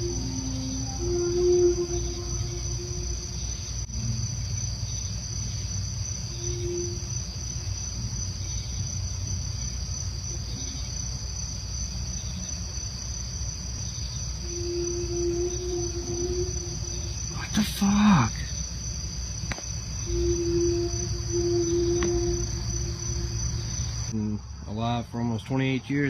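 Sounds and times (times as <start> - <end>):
brief low tone: 0.0 - 4.3, 14.4 - 17.4, 20.0 - 23.8
continuous low rumble: 0.0 - 26.0
night insects chorus: 0.0 - 26.0.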